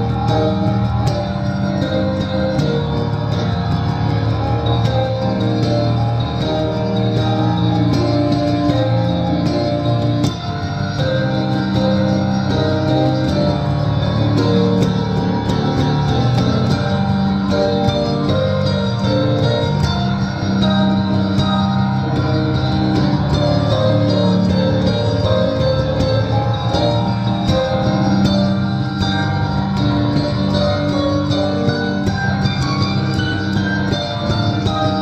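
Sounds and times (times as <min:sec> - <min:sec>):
piano piece: 0:00.0 - 0:35.0.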